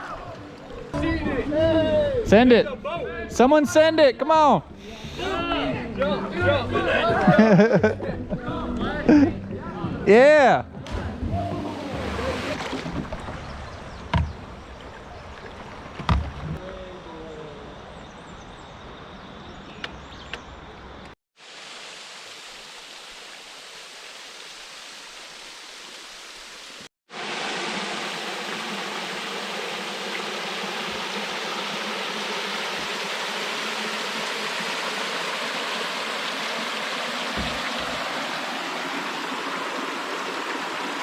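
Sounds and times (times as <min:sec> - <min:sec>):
river water rushing over rapids: 0:11.6 - 0:12.8, 0:21.4 - 0:41.0.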